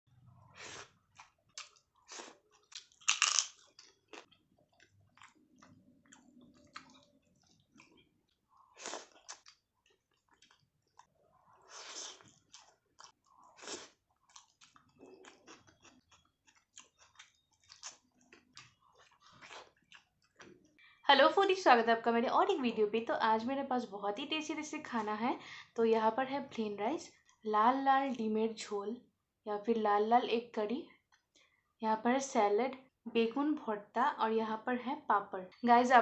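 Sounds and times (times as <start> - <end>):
person chewing crunchy food: 0.4 - 20.8.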